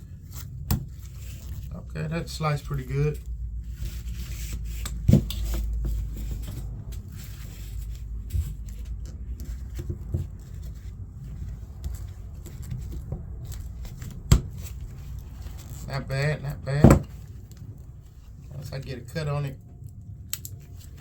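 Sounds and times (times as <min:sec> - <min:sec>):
cord handling noise: 0:03.1 - 0:16.0.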